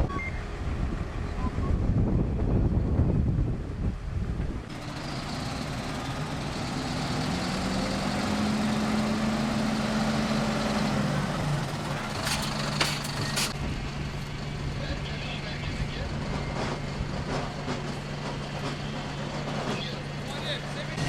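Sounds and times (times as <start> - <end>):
wind buffeting microphone: 0.0 - 4.9, 15.6 - 18.7
engine running: 4.1 - 21.0.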